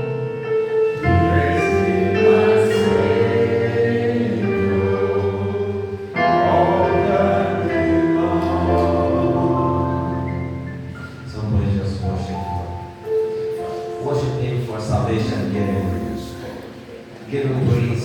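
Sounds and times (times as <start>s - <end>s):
choir singing gospel chords: 0.0s - 11.3s
low accompaniment: 0.0s - 18.0s.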